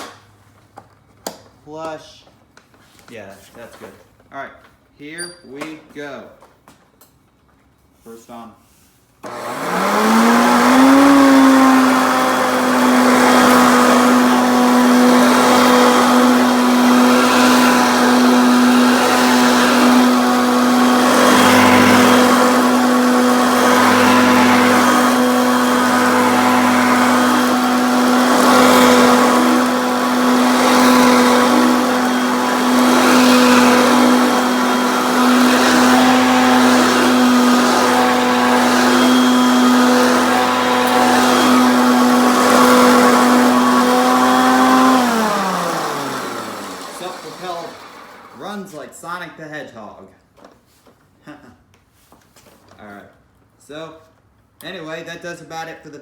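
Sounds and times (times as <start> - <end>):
vacuum air and brush noise: 8.0 - 48.8
vacuum cleaner motor whine: 9.2 - 48.6.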